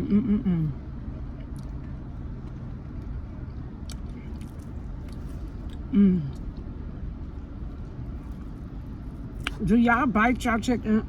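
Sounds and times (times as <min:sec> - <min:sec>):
person humming mmm: 0:00.0 - 0:00.8, 0:05.9 - 0:06.4
steady low hum: 0:00.0 - 0:11.0
person chewing crunchy food: 0:03.8 - 0:09.6.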